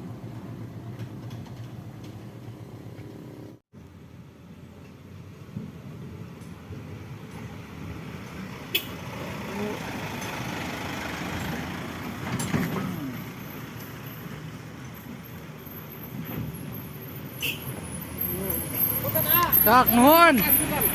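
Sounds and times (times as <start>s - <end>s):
truck engine under load: 4.7s - 20.9s.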